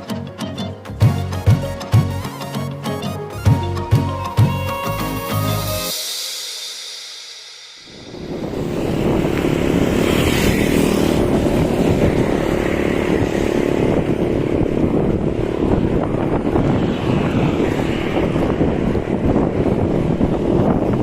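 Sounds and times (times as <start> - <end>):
vehicle and road noise: 8.1 - 21.0
wind buffeting microphone: 8.1 - 21.0.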